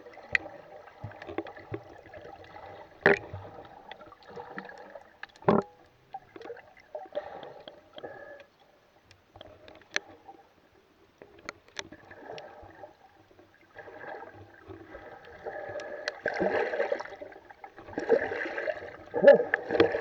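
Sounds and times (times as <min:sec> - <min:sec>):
water splashing against a kayak: 0:00.0 - 0:07.0, 0:11.6 - 0:20.0.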